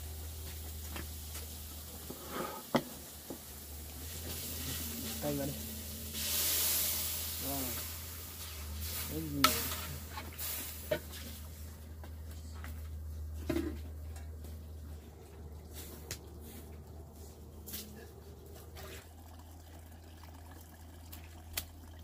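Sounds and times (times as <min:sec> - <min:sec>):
food sizzling in hot oil: 0:00.0 - 0:11.7.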